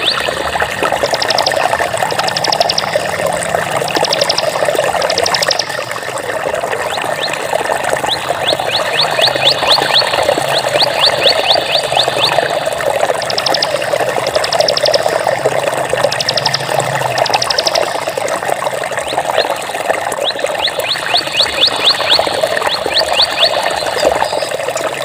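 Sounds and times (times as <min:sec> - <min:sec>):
water flowing: 0:00.0 - 0:25.0
high rising chirps: 0:01.0 - 0:01.6, 0:02.2 - 0:03.1, 0:04.0 - 0:05.8, 0:08.4 - 0:15.4, 0:16.1 - 0:18.2.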